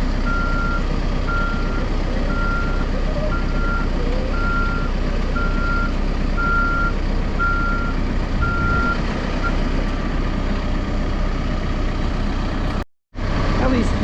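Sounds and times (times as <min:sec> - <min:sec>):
diesel engine running: 0:00.0 - 0:14.0
backup alarm beeping: 0:00.2 - 0:09.6.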